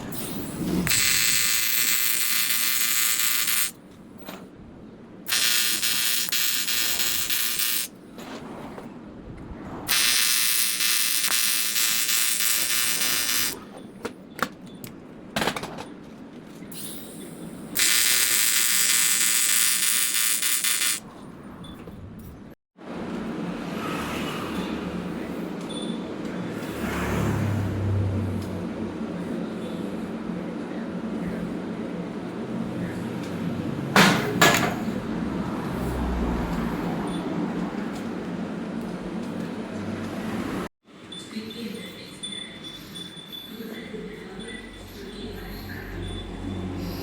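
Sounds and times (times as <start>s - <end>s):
welding arc buzzing: 0.0s - 3.8s, 5.3s - 8.0s, 9.9s - 13.6s, 17.0s - 21.0s.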